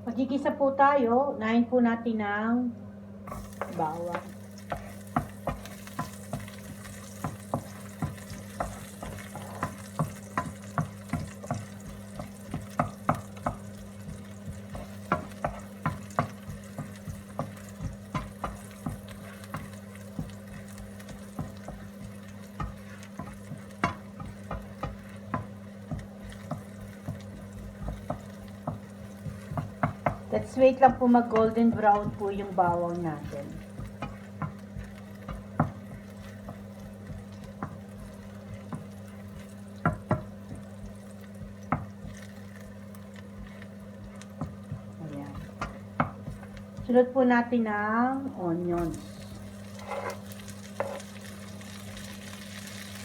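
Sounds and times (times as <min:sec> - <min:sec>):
steady low hum: 0:00.0 - 0:53.0
garlic sizzling in hot oil: 0:03.3 - 0:53.0
utensil scraping a pan: 0:49.0 - 0:51.1.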